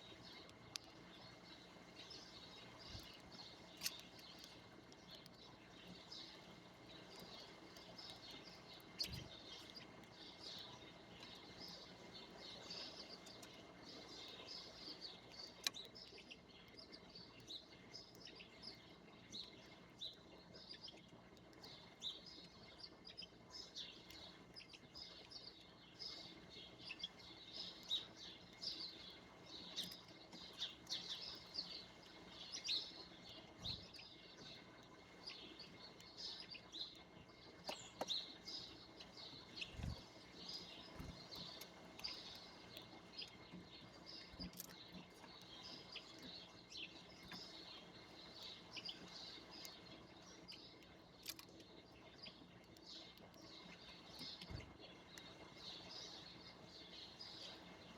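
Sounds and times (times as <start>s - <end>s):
songbirds chirping: 0.0s - 57.9s.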